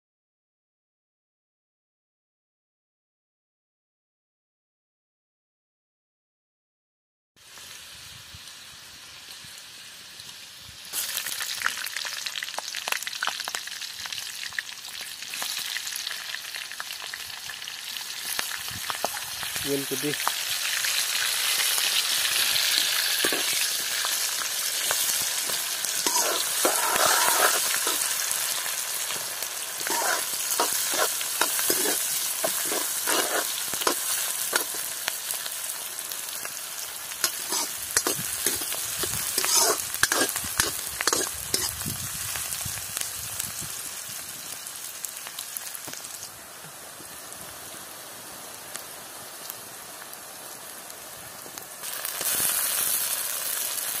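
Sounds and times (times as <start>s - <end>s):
hot oil sizzling in a wok: 7.4s - 54.0s
metal ladle scraping a pan: 22.8s - 23.7s, 24.9s - 29.2s, 29.8s - 34.8s, 37.2s - 41.8s.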